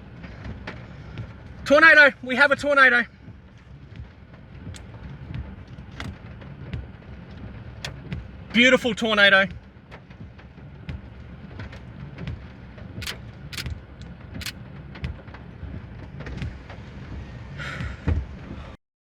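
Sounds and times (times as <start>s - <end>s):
sharp clicks and knocks: 13.0s - 13.8s.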